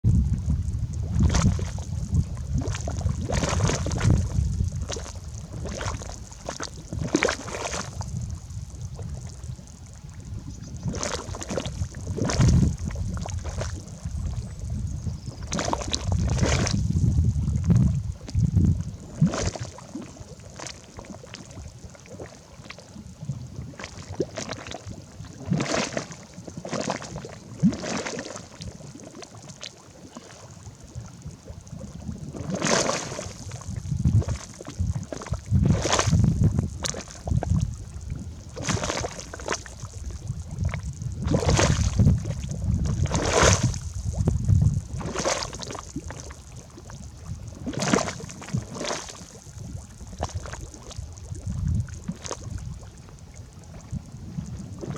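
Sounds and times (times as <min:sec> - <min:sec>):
low rumble: 0:00.0 - 0:19.3, 0:33.5 - 0:47.7
mud bubbling and plopping: 0:00.0 - 0:54.9.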